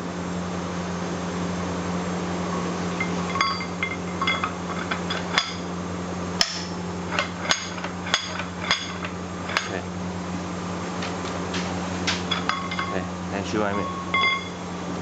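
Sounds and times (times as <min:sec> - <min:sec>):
steady low hum: 0:00.0 - 0:15.0
metallic clinks and knocks: 0:03.0 - 0:05.7, 0:12.1 - 0:13.0, 0:13.7 - 0:14.7.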